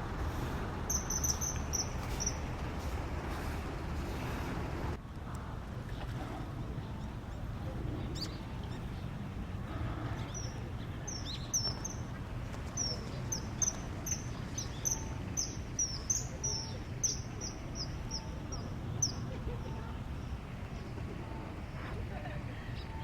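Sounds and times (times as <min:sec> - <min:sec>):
steady low rumble: 0:00.0 - 0:23.0
bird chirping: 0:00.3 - 0:04.3, 0:10.2 - 0:21.8.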